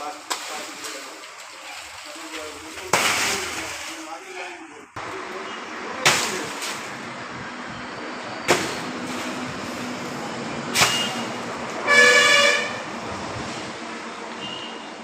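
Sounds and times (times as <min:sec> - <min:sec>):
vehicle horn toot: 0:10.8 - 0:12.9, 0:14.4 - 0:14.9.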